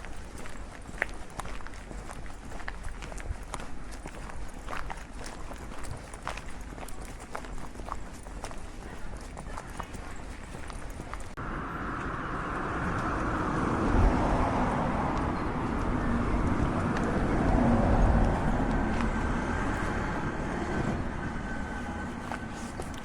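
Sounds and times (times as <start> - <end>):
vehicle rumbling past: 11.3 - 23.0.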